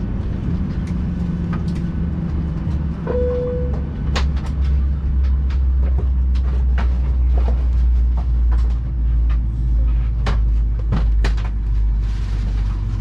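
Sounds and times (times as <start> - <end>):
aircraft cabin low rumble: 0.0 - 13.0
short steady tone: 3.0 - 3.8
scattered clicks and knocks: 3.5 - 9.5.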